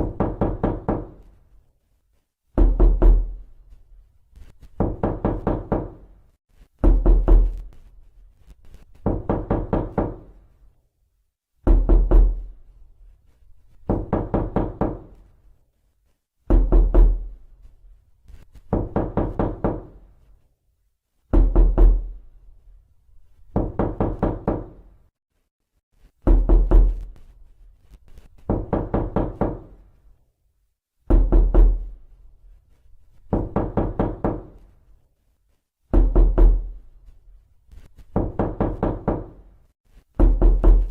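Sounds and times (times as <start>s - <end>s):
heavy knocking on a door: 0.0s - 1.2s, 2.6s - 3.4s, 4.8s - 6.1s, 6.8s - 7.6s, 9.0s - 10.3s, 11.6s - 12.5s, 13.9s - 15.1s, 16.5s - 17.3s, 18.7s - 20.0s, 21.3s - 22.2s, 23.5s - 24.8s, 26.2s - 27.0s, 28.5s - 29.8s, 31.1s - 31.9s, 33.3s - 34.6s, 35.9s - 36.8s, 38.1s - 39.5s, 40.2s - 40.9s.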